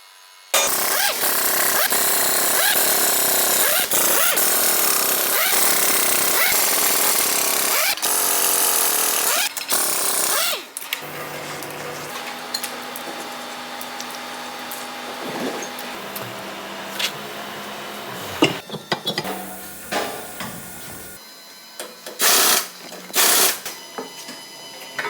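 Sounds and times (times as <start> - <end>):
pneumatic impact wrench hammering: 0.6 - 10.7, 18.2 - 21.2, 22.1 - 23.8.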